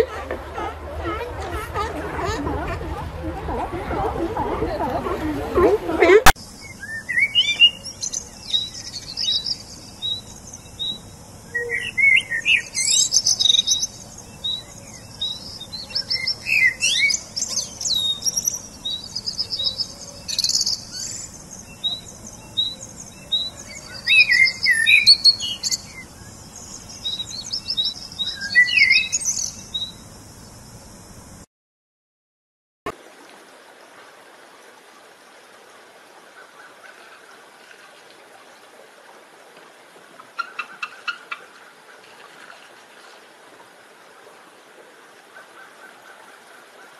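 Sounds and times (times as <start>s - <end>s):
songbirds chirping and singing: 6.4s - 31.4s.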